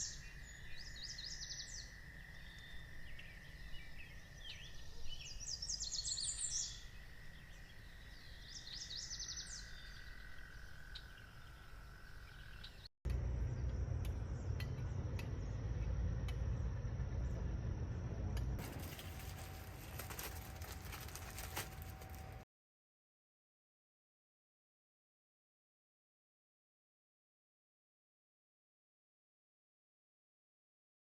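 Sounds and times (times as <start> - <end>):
birds chirping in trills: 0.0 - 12.9
insect-like drone: 0.0 - 22.4.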